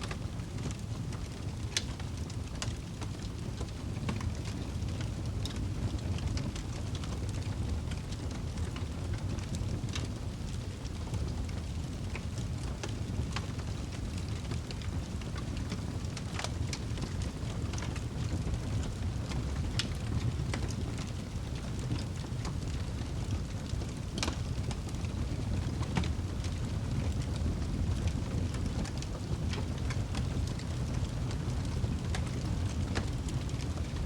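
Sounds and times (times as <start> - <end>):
fire crackling and popping: 0.0 - 34.0
fire flames rushing: 0.1 - 34.0.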